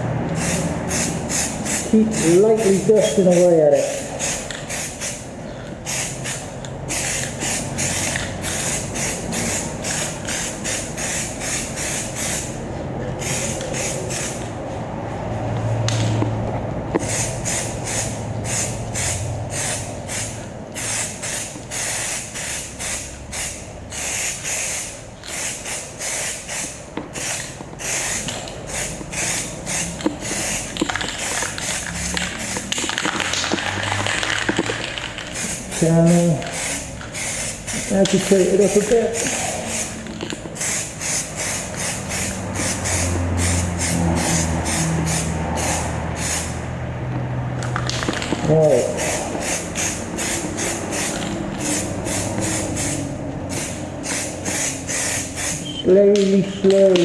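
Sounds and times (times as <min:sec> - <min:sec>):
aerosol spray can hissing: 0:17.0 - 0:35.8, 0:36.5 - 0:40.0, 0:40.6 - 0:46.6, 0:48.8 - 0:55.7.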